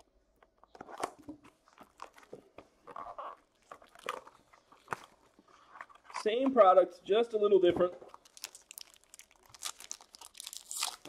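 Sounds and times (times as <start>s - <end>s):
packaging tearing: 8.1s - 11.0s
wrapper crinkling: 8.1s - 11.0s.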